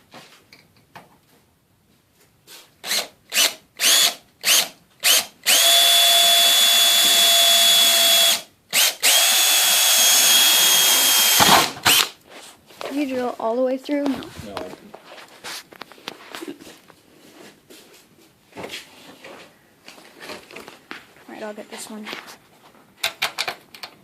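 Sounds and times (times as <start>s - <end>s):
electric drill boring into metal: 2.8s - 12.2s.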